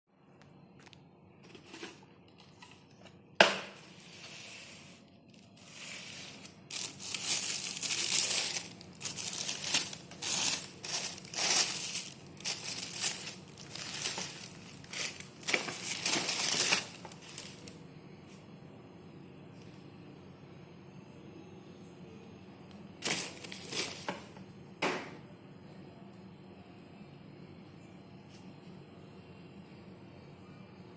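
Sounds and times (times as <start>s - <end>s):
packaging crinkling and rustling: 5.2s - 17.8s, 23.0s - 24.4s.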